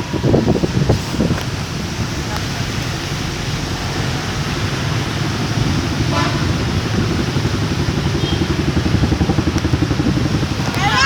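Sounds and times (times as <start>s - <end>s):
vehicle engine rumble: 0.0s - 11.0s
horn toot: 6.0s - 6.8s.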